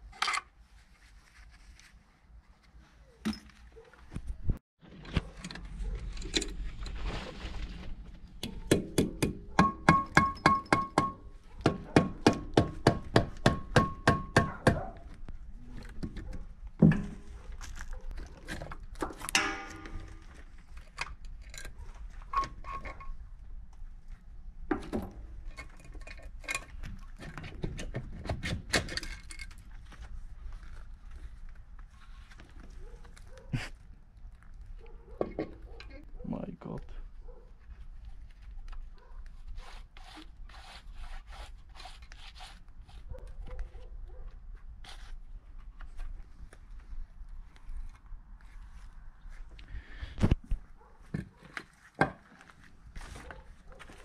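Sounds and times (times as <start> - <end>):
metal scrape: 19.3 - 20.5.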